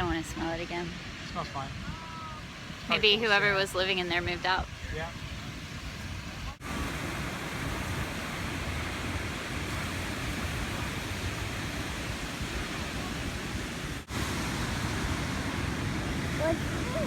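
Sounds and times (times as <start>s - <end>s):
ocean surf: 0.0s - 17.0s
wind: 0.0s - 17.0s.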